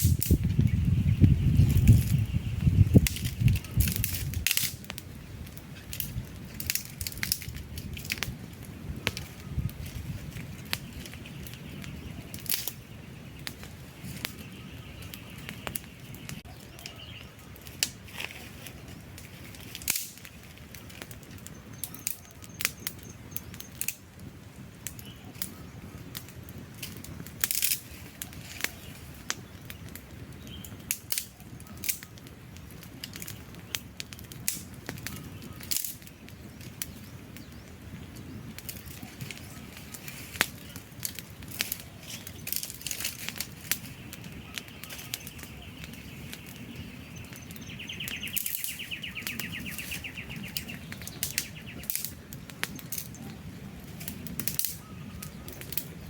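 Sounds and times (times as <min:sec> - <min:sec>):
campfire crackling and popping: 0:00.0 - 0:56.0
low rush of flames: 0:00.0 - 0:56.0.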